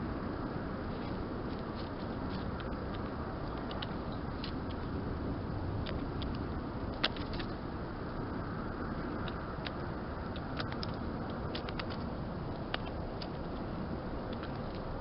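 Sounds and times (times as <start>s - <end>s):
distant road traffic rumble: 0.0s - 15.0s
birds ticking while feeding: 5.8s - 15.0s.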